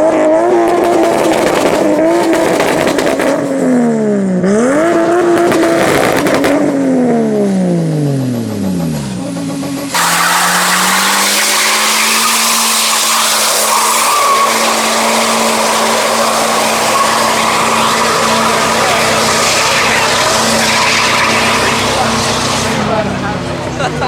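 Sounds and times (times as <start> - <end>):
car engine at high revs: 0.0 - 24.0
tyres screeching: 9.2 - 23.4.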